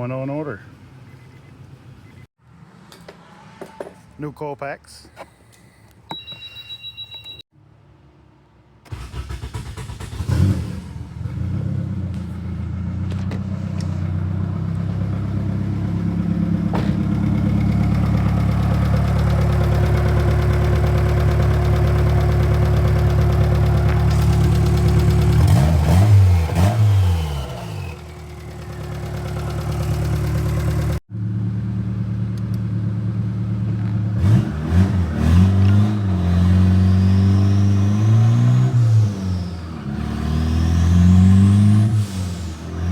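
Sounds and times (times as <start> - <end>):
car engine revving: 9.0 - 31.0, 33.9 - 42.9.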